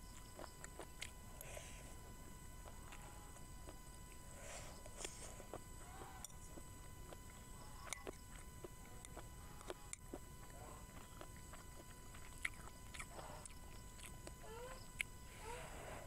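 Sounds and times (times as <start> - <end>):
faint close-up chewing: 0.0 - 16.0.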